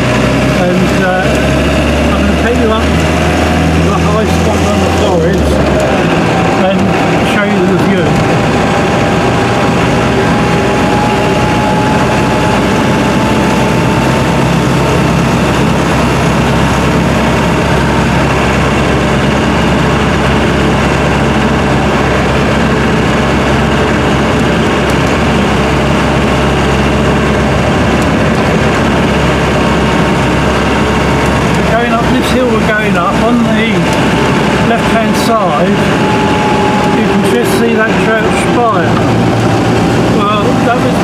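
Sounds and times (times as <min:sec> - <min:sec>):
engine drone inside vehicle: 0:00.0 - 0:41.0
faint whine: 0:03.8 - 0:41.0.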